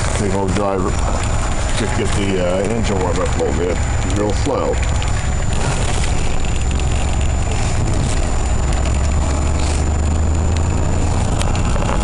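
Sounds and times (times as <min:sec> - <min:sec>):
golf cart engine running: 0:00.0 - 0:12.0.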